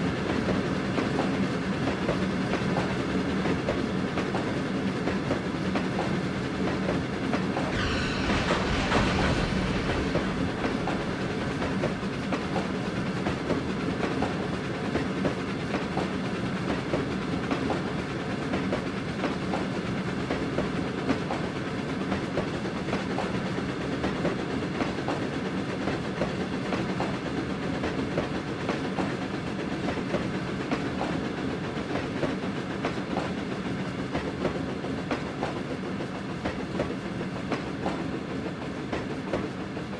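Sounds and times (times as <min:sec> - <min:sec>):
train rumbling: 0:00.0 - 0:16.7
bright rushing sound: 0:07.7 - 0:13.3.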